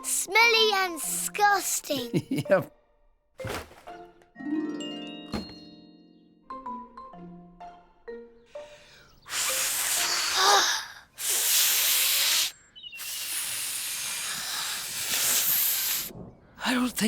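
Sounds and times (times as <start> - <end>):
xylophone-like music notes: 4.4 - 7.5
loud steady hissing: 9.3 - 16.1.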